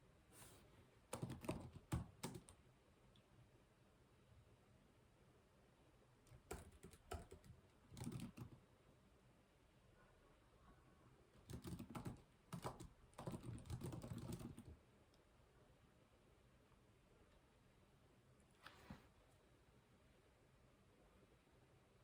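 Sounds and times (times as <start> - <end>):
typing on computer keyboard: 1.1 - 2.6, 6.3 - 8.6, 11.4 - 14.8.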